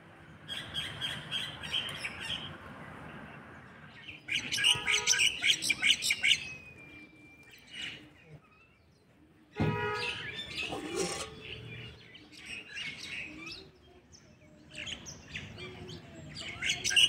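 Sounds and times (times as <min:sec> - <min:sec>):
small birds chirping: 0:00.2 - 0:17.0.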